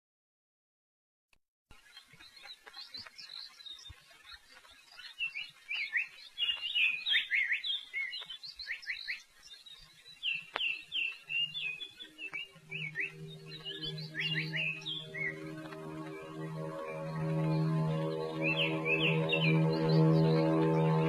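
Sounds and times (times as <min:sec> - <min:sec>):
songbirds chirping: 0:01.7 - 0:21.0
soft music: 0:10.4 - 0:21.0.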